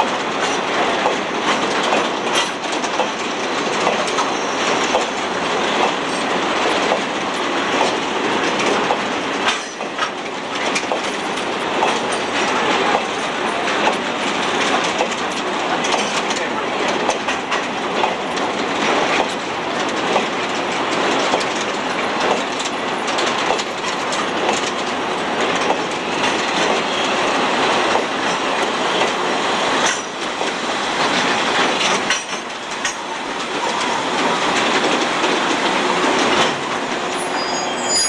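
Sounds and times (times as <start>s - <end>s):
goods wagons rumbling over rail joints: 0.0s - 38.0s
high wheel squeal: 4.1s - 5.2s, 37.1s - 38.0s.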